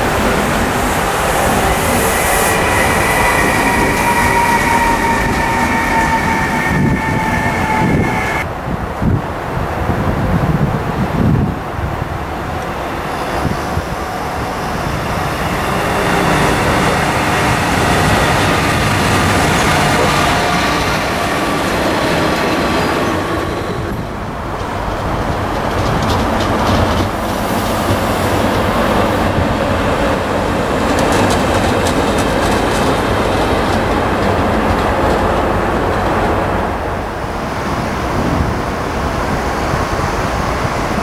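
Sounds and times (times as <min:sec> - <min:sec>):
wheels clicking over rail joints: 0:24.4 - 0:27.4.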